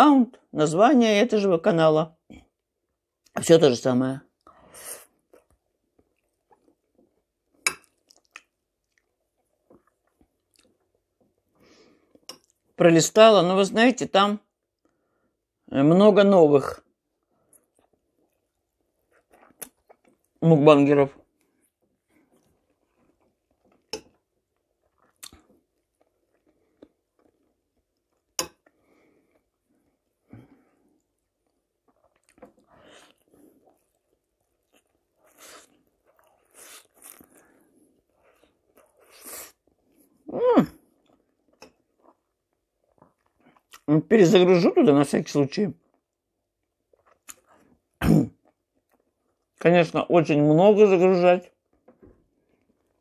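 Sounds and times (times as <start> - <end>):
wet chewing: 5.1 - 12.8, 17.2 - 20.4, 21.2 - 44.0, 45.8 - 49.6.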